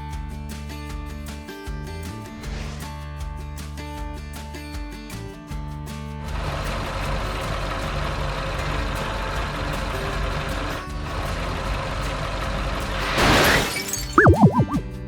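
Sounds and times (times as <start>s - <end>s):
music: 0.0s - 13.0s, 14.2s - 15.0s
truck engine running: 6.3s - 13.6s.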